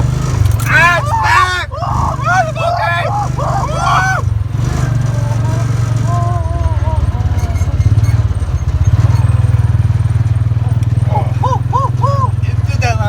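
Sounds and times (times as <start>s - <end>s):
small engine running: 0.0s - 13.0s
faint voice: 0.6s - 4.2s, 4.8s - 8.0s.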